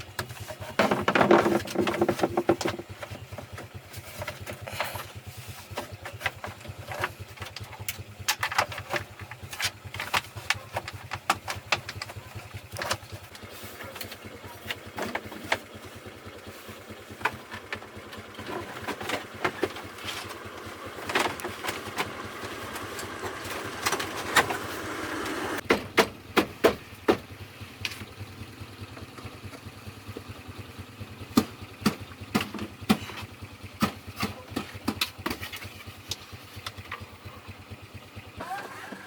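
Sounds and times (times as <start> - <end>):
truck engine idling: 0.0 - 39.0
sharp knocks and clanks: 0.1 - 4.9, 17.2 - 27.3.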